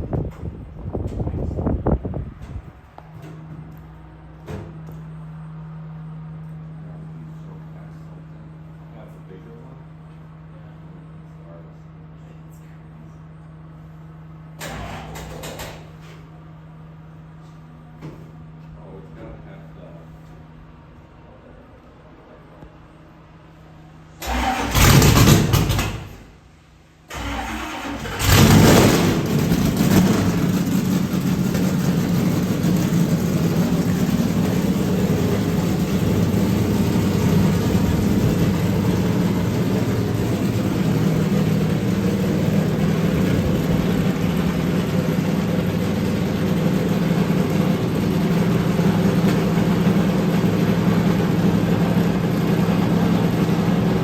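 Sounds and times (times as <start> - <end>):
race car engine starting and idling: 13.8 - 16.4, 24.0 - 54.0.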